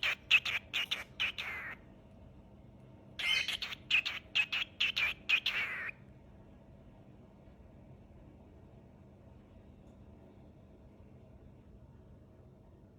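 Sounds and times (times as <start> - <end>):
cockatiel whistling chirps: 0.0 - 1.8, 3.2 - 5.9.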